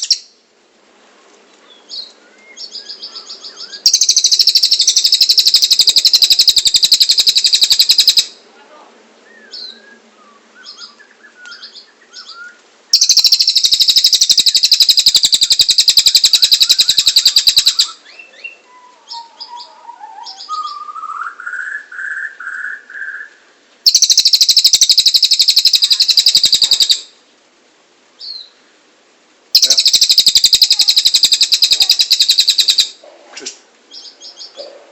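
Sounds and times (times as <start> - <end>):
lower warbled bird phrase: 2.2 - 23.2, 23.9 - 27.2, 29.5 - 33.0
soft bird chirps: 29.6 - 32.9
songbird rapid high notes: 29.6 - 33.0.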